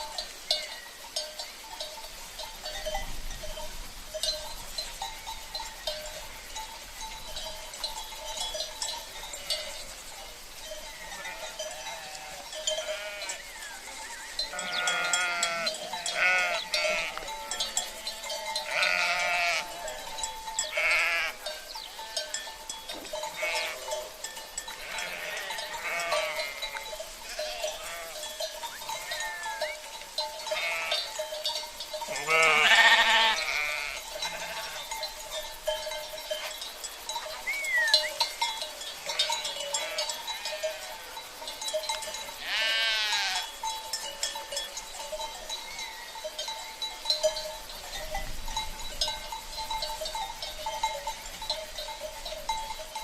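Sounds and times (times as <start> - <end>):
cowbells ringing: 0.0 - 53.0
sheep bleating: 11.1 - 13.5, 14.5 - 20.1, 20.7 - 21.5, 23.3 - 24.0, 24.8 - 28.3, 28.9 - 29.8, 30.5 - 31.1, 32.1 - 34.9, 39.0 - 41.0, 42.4 - 43.5.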